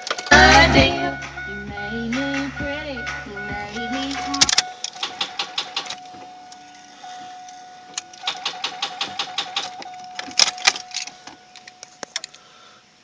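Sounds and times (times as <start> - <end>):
warning chime tone: 0.0 - 4.8.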